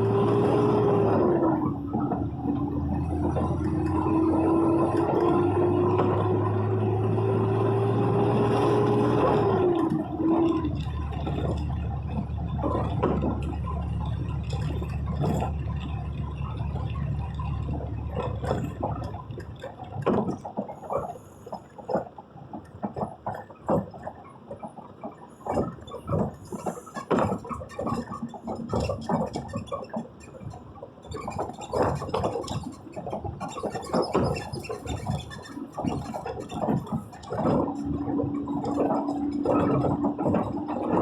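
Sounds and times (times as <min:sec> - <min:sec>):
whine with low hum: 0:00.0 - 0:20.2, 0:31.4 - 0:41.0
road and rain rumble: 0:00.0 - 0:20.4, 0:31.9 - 0:41.0
raindrops tapping vehicle: 0:00.0 - 0:41.0.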